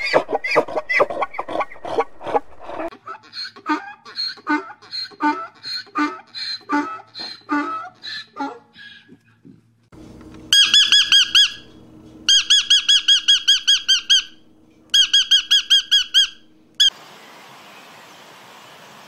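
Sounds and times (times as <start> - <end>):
parrot squawking: 10.5 - 16.9.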